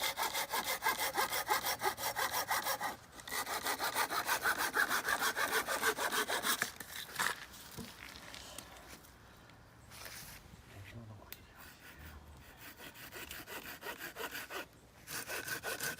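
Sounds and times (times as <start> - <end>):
hand saw cutting wood: 0.0 - 6.9, 11.9 - 15.9.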